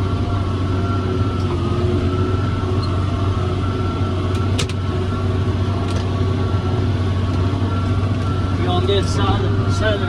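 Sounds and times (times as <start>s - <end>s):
tractor diesel engine droning: 0.0s - 10.0s.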